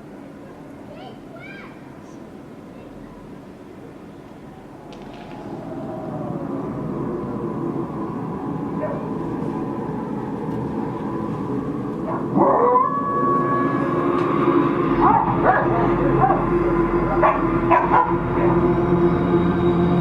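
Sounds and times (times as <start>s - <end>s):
musical drone over loudspeakers: 2.0s - 20.0s
dog-like howls and barks: 4.6s - 10.3s, 12.0s - 14.1s, 14.8s - 19.2s.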